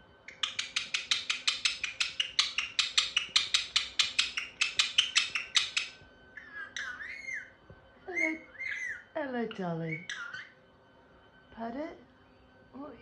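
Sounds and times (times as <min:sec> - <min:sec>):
whistled bird call: 0:00.3 - 0:07.6.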